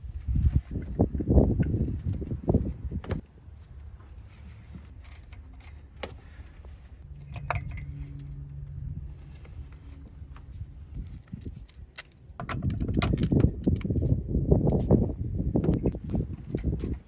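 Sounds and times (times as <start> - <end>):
metallic clinks of hand tools: 12.0 - 13.9.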